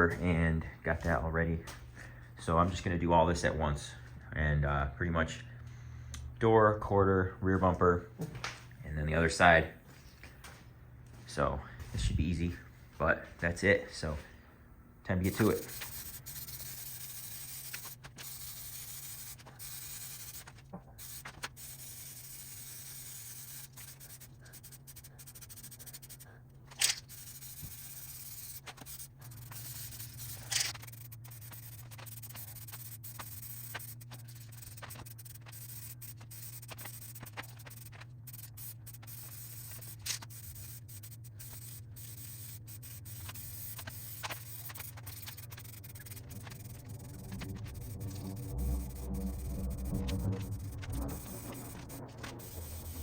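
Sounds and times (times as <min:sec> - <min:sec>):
low hum: 0:14.2 - 0:53.0
paint spray hiss: 0:15.2 - 0:53.0.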